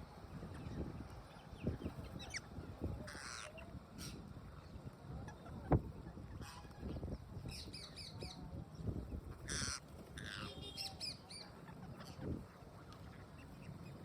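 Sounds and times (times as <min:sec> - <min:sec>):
parrot harsh squawk: 0:03.1 - 0:04.2, 0:09.5 - 0:10.6
parrots chirping: 0:03.1 - 0:04.2, 0:09.4 - 0:12.3.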